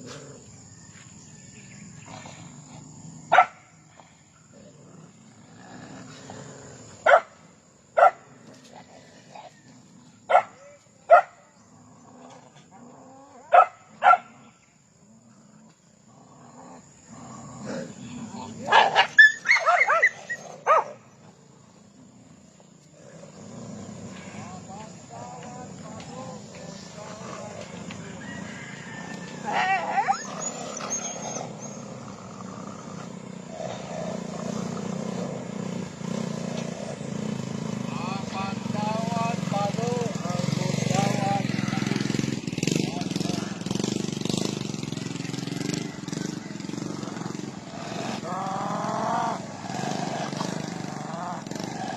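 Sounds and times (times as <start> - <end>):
dog crying: 18.7 - 20.8, 29.4 - 31.7.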